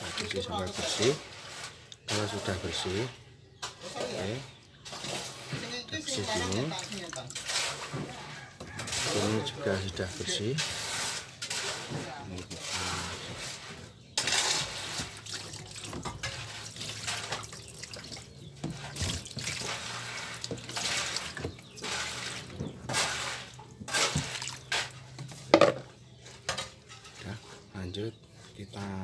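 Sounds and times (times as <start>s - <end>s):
tap water running and splashing: 0.0s - 2.4s, 6.1s - 9.0s, 14.2s - 25.4s.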